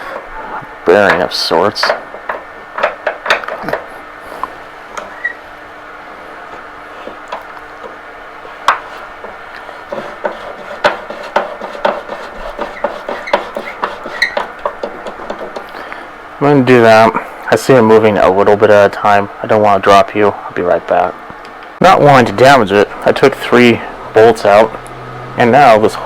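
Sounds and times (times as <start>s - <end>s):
hand tools clicking: 0.0s - 5.3s.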